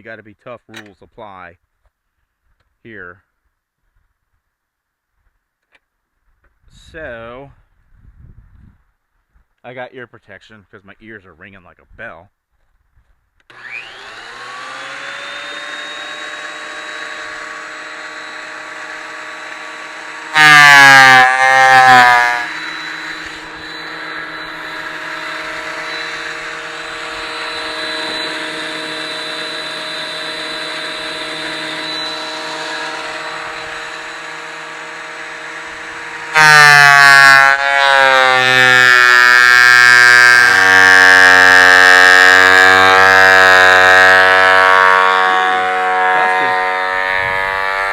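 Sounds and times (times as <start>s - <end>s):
planer cutting planks: 13.5s - 47.9s
thickness planer motor running: 13.5s - 47.9s.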